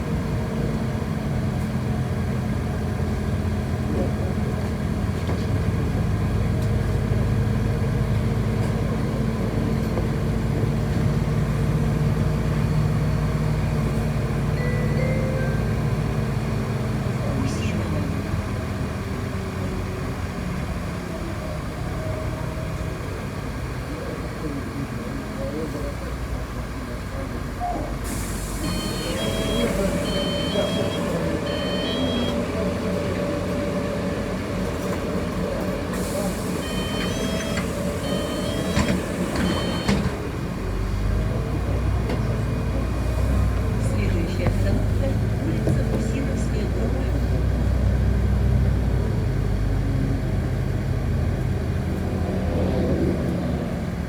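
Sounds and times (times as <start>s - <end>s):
bus engine and road rumble: 0.0s - 54.0s
short high beep: 14.6s - 16.0s, 28.6s - 32.4s, 36.6s - 40.0s.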